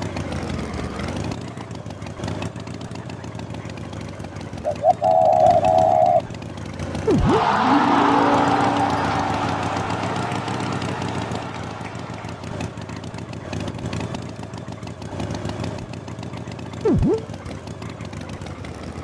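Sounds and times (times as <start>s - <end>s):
swooping sound effect: 4.7s - 6.2s, 7.1s - 13.0s, 16.9s - 17.3s
mechanical engine rumble: 16.8s - 17.4s.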